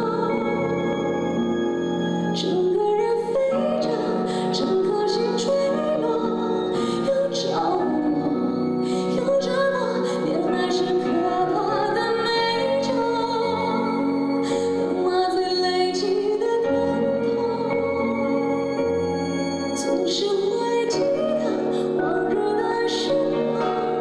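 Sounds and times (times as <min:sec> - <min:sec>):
instrumental accompaniment: 0:00.0 - 0:24.0
woman singing: 0:00.0 - 0:24.0.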